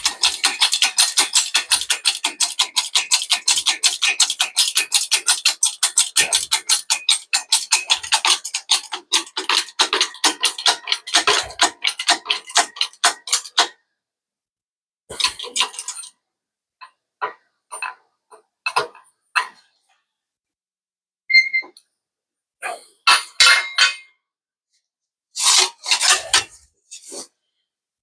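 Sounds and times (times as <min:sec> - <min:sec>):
rasping strokes on sheet metal: 0:00.0 - 0:13.6, 0:25.4 - 0:27.3.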